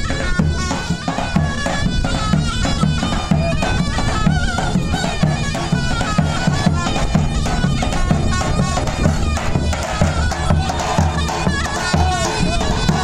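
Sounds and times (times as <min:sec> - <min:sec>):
shrill reed instrument melody: 0:00.1 - 0:13.0.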